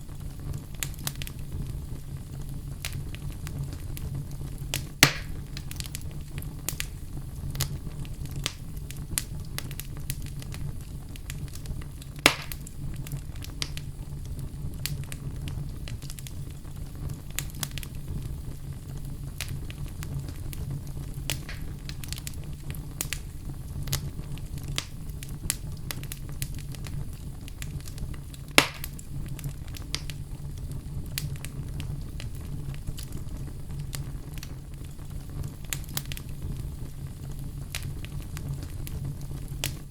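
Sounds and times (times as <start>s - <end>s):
loud fire pops: 0.0s - 39.9s
wood fire crackling: 0.0s - 39.9s.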